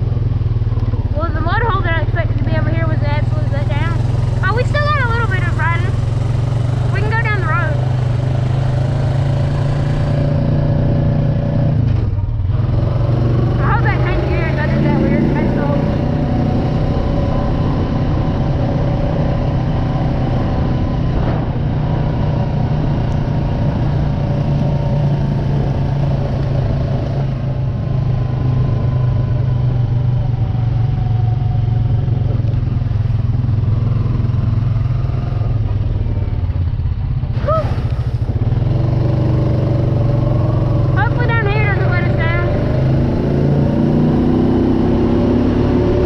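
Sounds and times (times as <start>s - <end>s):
off-road vehicle engine running: 0.0s - 46.0s.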